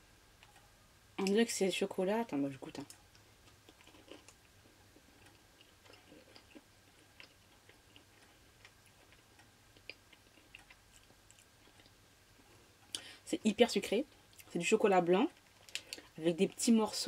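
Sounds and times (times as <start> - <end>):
person chewing chocolate: 3.1 - 13.0.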